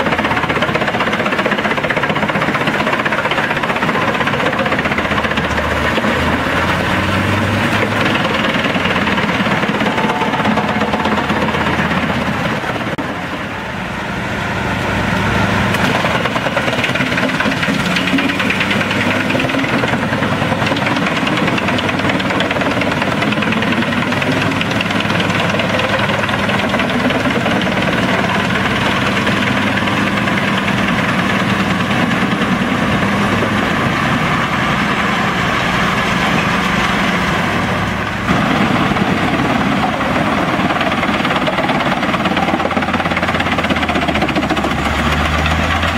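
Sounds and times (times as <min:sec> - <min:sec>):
diesel engine under load: 0:00.0 - 0:45.9
wood chipper running: 0:00.0 - 0:45.9.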